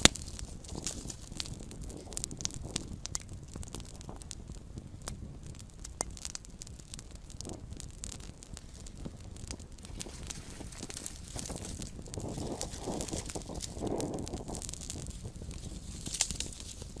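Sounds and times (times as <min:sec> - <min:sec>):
campfire popping and crackling: 0:00.0 - 0:17.0
low rumble of flame: 0:00.0 - 0:17.0.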